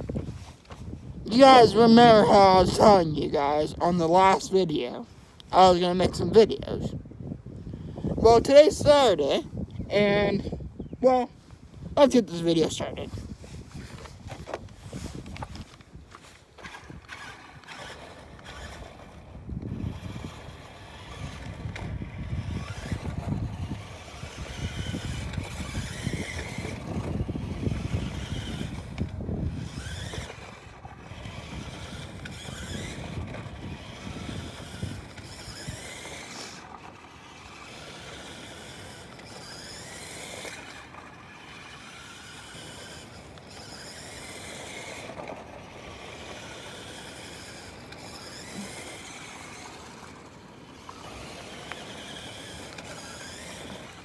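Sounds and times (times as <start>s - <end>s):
electric motor whining: 0.0s - 54.0s.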